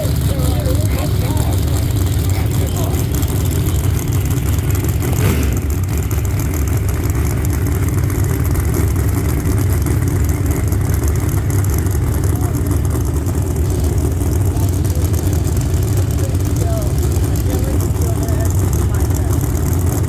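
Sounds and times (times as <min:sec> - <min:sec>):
race car engines idling: 0:00.0 - 0:20.0.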